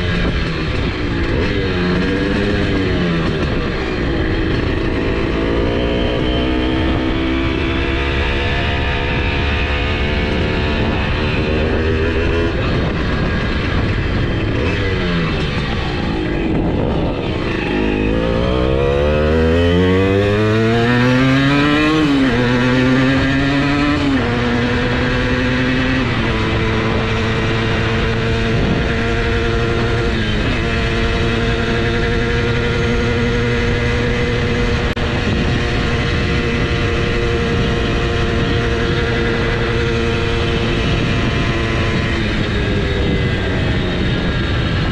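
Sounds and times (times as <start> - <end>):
moped engine at full throttle: 0.0 - 44.9.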